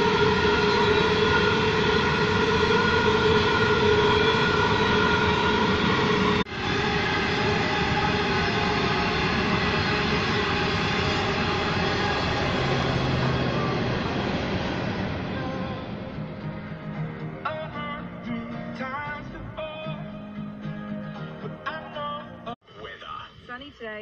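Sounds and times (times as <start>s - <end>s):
steady whining tones: 0.0s - 17.5s
train wagons rumbling on rails: 0.0s - 18.1s.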